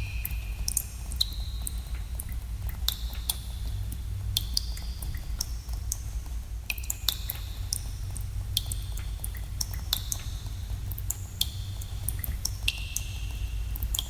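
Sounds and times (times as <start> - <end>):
water drops plinking: 0.0 - 3.5.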